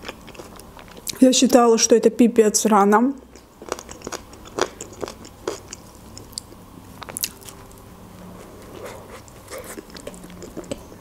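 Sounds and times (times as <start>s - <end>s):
person chewing food: 0.0s - 1.2s, 3.3s - 11.0s.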